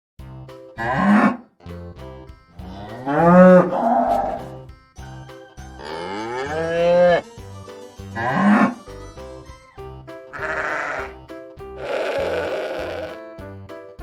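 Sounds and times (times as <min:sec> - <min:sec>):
background music repeating notes: 0:00.2 - 0:14.0
farm animals calling: 0:02.7 - 0:04.5, 0:05.8 - 0:07.2, 0:10.4 - 0:11.2, 0:11.8 - 0:13.2.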